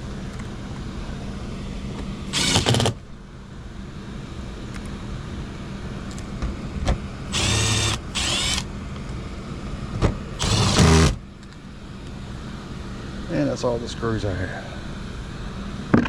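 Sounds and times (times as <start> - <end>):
cordless driver driving screws: 2.3 - 3.0, 7.3 - 8.7, 10.4 - 11.2.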